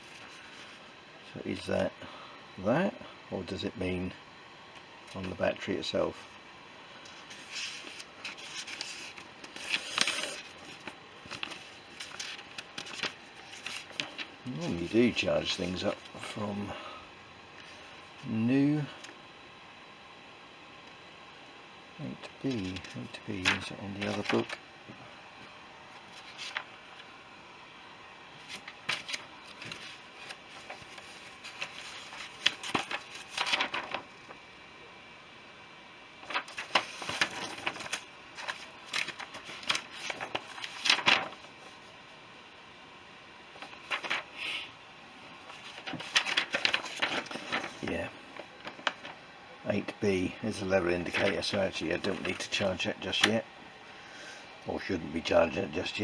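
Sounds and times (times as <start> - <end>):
paper pages rustling: 0.0 - 0.9, 7.0 - 16.4, 22.4 - 24.6, 25.9 - 27.1, 28.4 - 34.4, 36.2 - 41.9, 43.6 - 44.4, 45.4 - 49.2, 50.1 - 53.4
faint steady hiss: 0.0 - 56.0.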